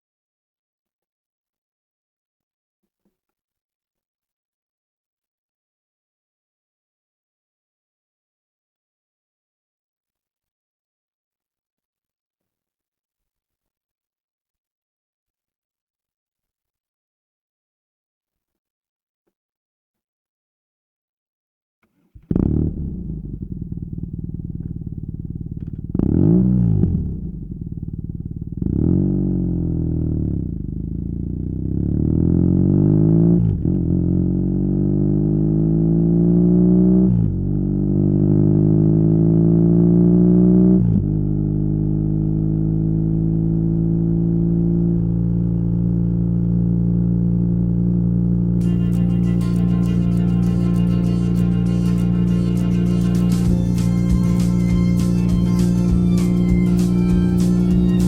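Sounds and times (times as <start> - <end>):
motorcycle engine accelerating: 22.2 - 58.0.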